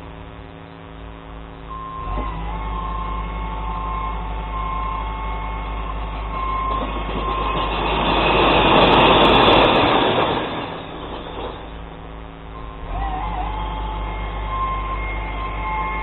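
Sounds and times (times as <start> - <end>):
truck whining: 1.7 - 16.0
glass bottles crashing: 6.7 - 11.8.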